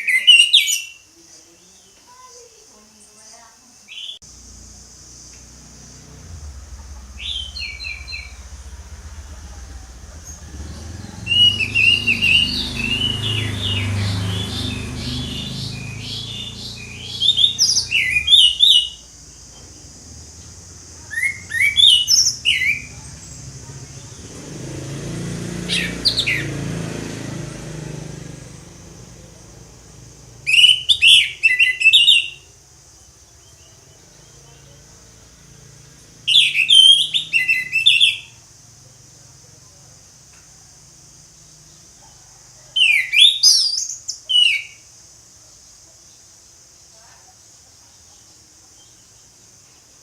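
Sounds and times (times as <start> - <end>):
bird singing whistles and chirps: 0.0 - 1.0, 7.2 - 8.4, 10.1 - 19.1, 21.0 - 23.0, 30.4 - 32.5, 36.3 - 38.4, 42.8 - 44.9
steady high hiss: 0.9 - 36.3.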